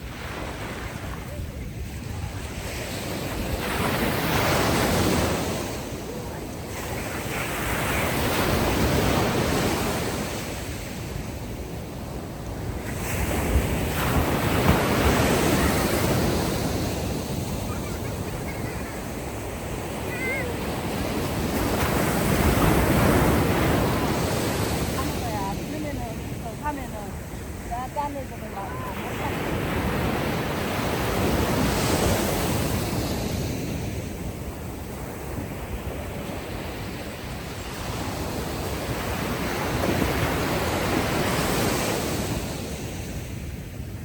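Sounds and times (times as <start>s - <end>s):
ocean waves washing onto beach: 0.0s - 44.0s.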